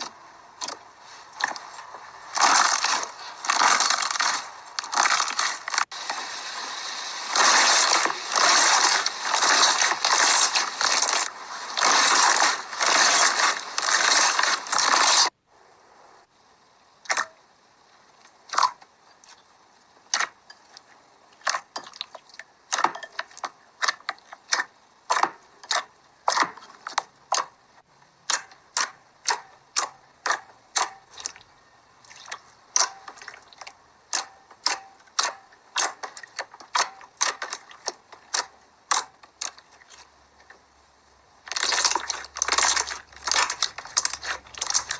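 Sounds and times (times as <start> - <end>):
slime squishing and popping: 7.3 - 15.3, 32.1 - 40.0, 41.5 - 44.9.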